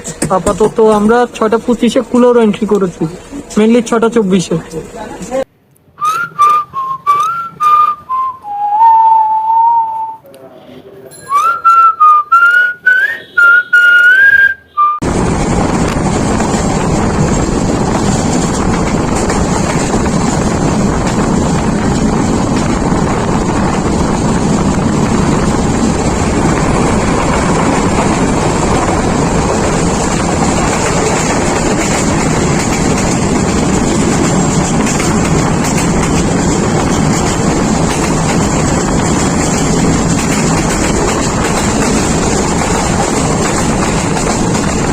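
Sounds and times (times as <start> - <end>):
moving train rumble: 0.0 - 10.2, 11.4 - 44.9
person whistling a tune: 6.0 - 10.2, 11.2 - 15.0
wind on microphone: 15.0 - 44.9.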